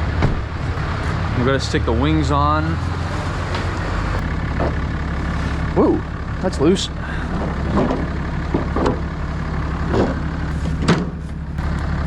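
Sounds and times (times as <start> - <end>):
truck engine idling: 0.0 - 12.0
short knocks: 7.3 - 9.1.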